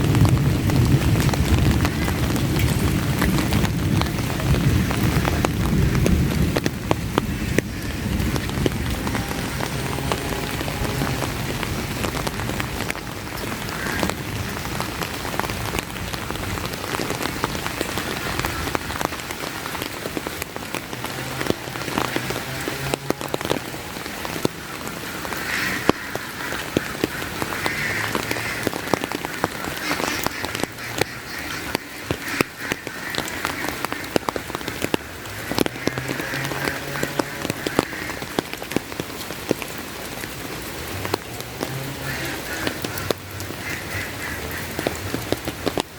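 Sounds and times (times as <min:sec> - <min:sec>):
raindrops tapping close: 0:00.0 - 0:45.9
steady rain: 0:00.0 - 0:45.9
frogs croaking: 0:07.1 - 0:14.9, 0:20.8 - 0:38.6, 0:41.6 - 0:45.5.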